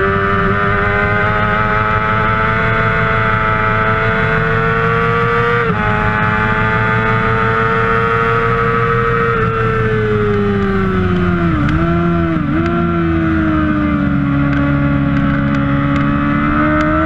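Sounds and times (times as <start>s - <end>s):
motorcycle engine at high revs: 0.0s - 17.0s.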